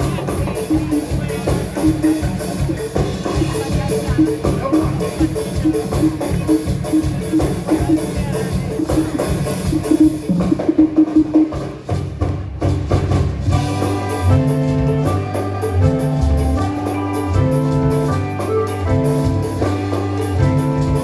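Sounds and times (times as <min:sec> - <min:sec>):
drums and percussion: 0:00.0 - 0:21.0
gospel band playing live: 0:00.0 - 0:21.0
held chords: 0:13.5 - 0:21.0
moving bass line: 0:13.5 - 0:21.0.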